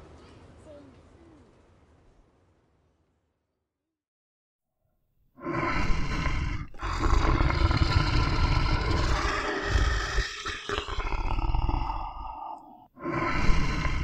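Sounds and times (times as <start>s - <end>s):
lion roaring and growling: 5.4s - 14.0s.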